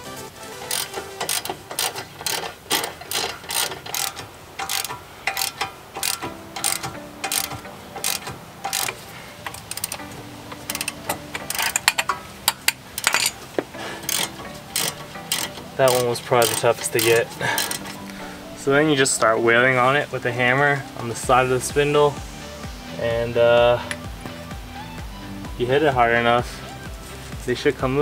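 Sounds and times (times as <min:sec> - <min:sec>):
hand ratchet clicking: 0:00.6 - 0:13.4, 0:14.0 - 0:18.2.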